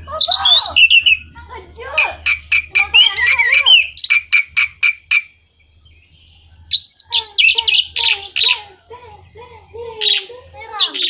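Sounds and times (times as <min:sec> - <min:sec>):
bird whistled and warbled phrase: 0:00.0 - 0:05.3, 0:06.7 - 0:11.0
bird sharp chips: 0:02.0 - 0:05.4.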